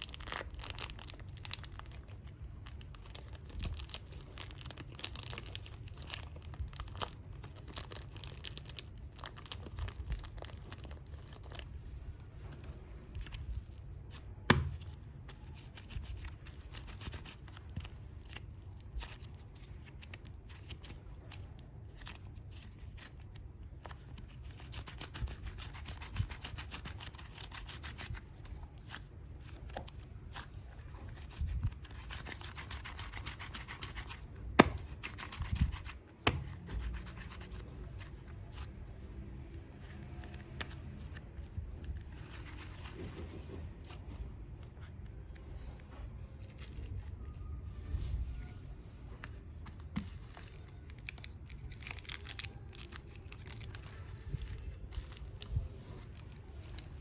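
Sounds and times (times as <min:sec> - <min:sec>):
clay rubbing and handling: 0:00.0 - 0:57.0.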